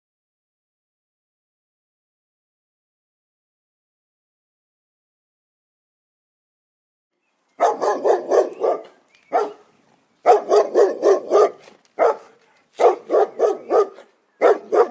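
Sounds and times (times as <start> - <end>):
dog barking: 7.6 - 14.9.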